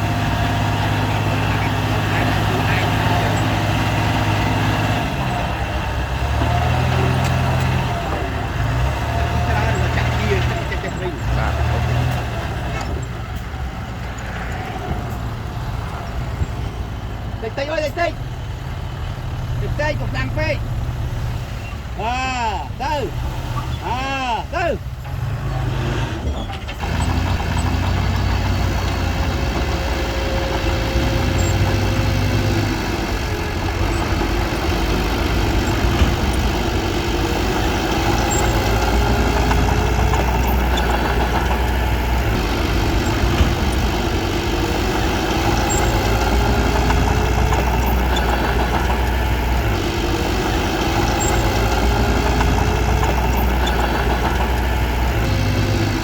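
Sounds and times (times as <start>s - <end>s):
bulldozer diesel engine droning: 0.0s - 56.0s.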